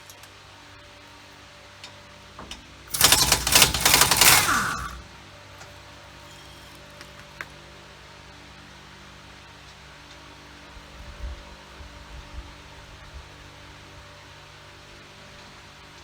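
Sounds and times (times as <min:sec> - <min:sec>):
impact wrench hammering: 0:02.9 - 0:05.0.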